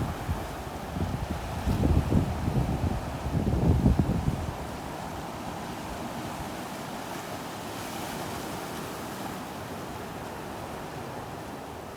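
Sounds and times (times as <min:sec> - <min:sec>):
low wind rumble on microphone: 0:00.0 - 0:04.8.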